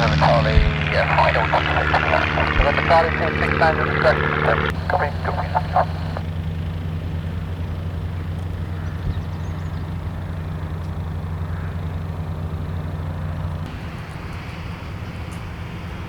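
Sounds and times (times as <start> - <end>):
light aircraft engine and propeller: 0.0 - 16.0.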